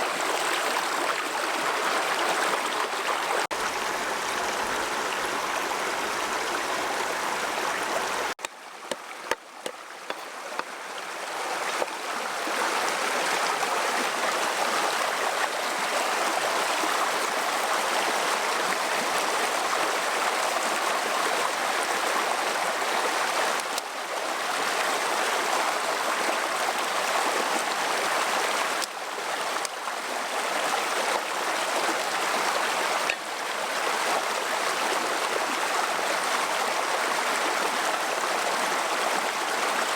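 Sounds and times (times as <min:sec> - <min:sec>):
stream water flowing: 0:00.0 - 0:39.9
small knocks: 0:08.4 - 0:10.7.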